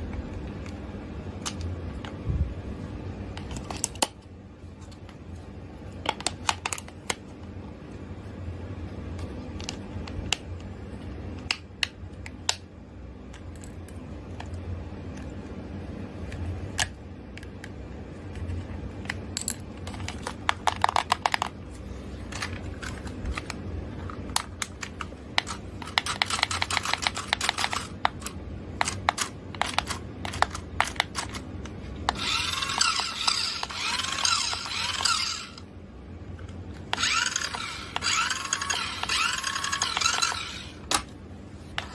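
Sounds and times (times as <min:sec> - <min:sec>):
plastic toys and packaging rattling: 0:19.4 - 0:31.4, 0:32.1 - 0:35.6, 0:37.0 - 0:40.8.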